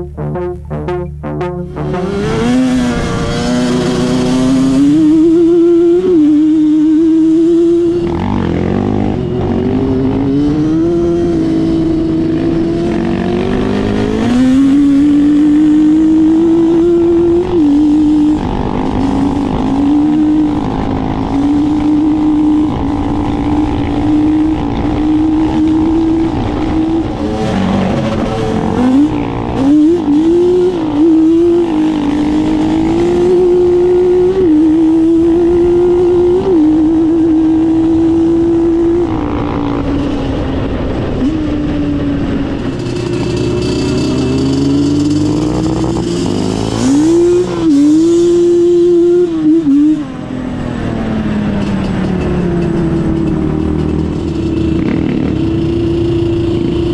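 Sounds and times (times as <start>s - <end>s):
off-road vehicle engine revving: 0.0s - 56.9s.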